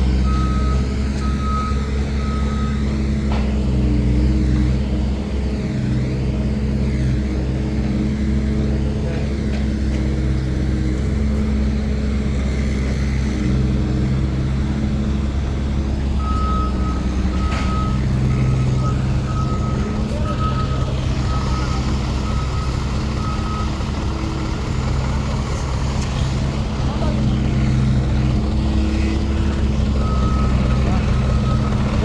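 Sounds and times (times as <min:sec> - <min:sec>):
diesel engine running: 0:00.0 - 0:32.0
reversing alarm beeping: 0:00.1 - 0:04.4, 0:16.2 - 0:25.7, 0:27.8 - 0:32.0.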